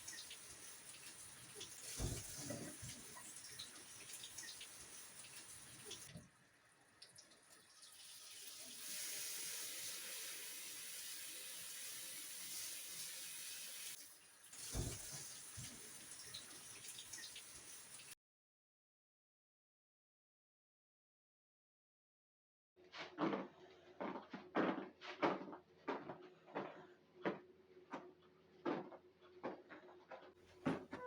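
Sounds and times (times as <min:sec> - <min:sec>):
water running from tap into sink: 0:00.0 - 0:06.2, 0:06.8 - 0:18.2.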